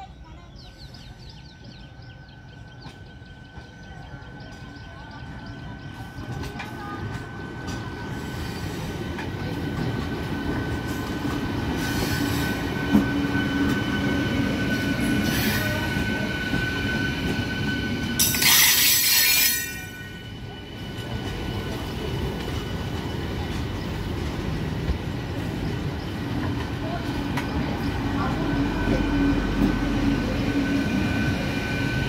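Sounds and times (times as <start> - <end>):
train wheels rumbling on rails: 0.0 - 32.0
loud harsh screech: 18.1 - 20.2
thin high squeal: 18.2 - 20.3.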